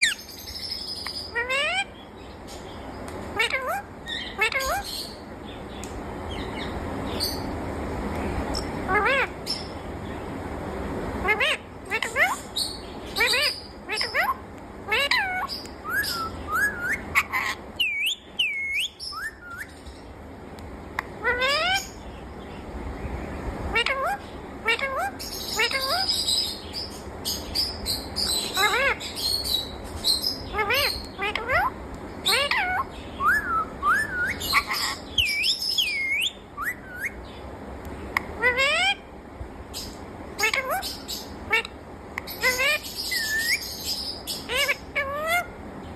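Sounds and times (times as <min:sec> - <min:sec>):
parrot calling: 0:00.0 - 0:02.3, 0:03.3 - 0:05.2, 0:08.5 - 0:09.8, 0:11.2 - 0:20.0, 0:21.0 - 0:22.1, 0:23.7 - 0:37.5, 0:38.1 - 0:39.1, 0:39.7 - 0:45.6
parrot whistling: 0:13.2 - 0:19.8, 0:32.3 - 0:37.2, 0:42.4 - 0:43.7.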